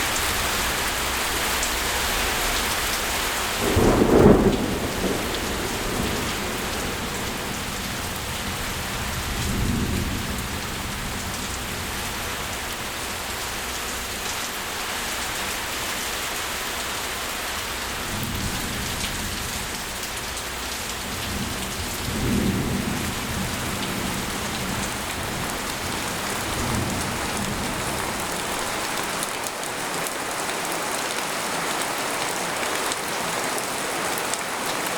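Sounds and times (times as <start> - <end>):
rain pattering on a tent: 0.0 - 34.9
loud thunderclap: 3.6 - 10.5, 21.3 - 27.7
faint rolls of thunder: 3.6 - 11.3.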